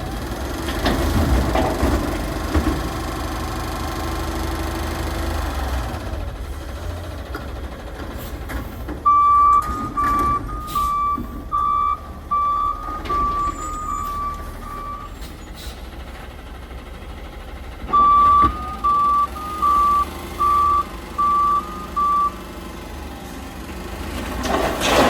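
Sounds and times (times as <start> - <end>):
diesel engine humming: 0.0 - 25.0
reversing alarm beeping: 9.0 - 15.6, 17.9 - 22.5.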